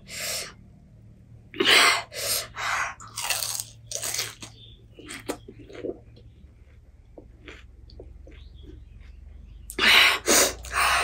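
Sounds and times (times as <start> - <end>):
crisp shell crunching and chewing: 3.0 - 9.8.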